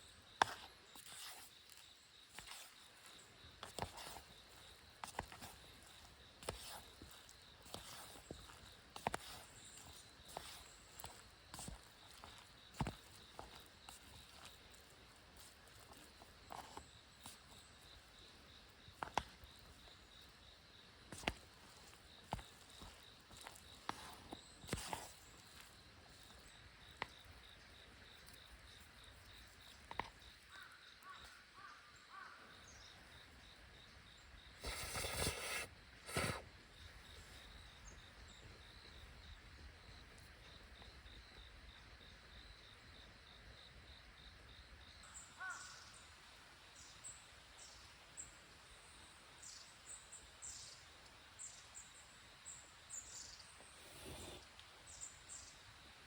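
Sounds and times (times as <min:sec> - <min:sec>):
small birds chirping: 0:00.0 - 0:39.7
loud bird calls: 0:45.3 - 0:45.9.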